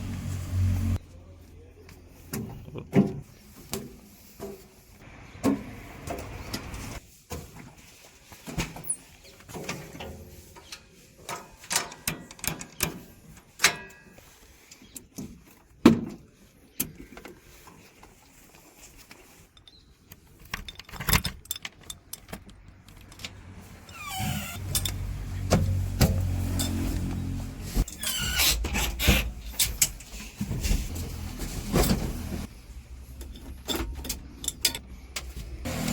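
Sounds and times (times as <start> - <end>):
diesel engine revving: 0.0 - 1.0, 35.7 - 35.9.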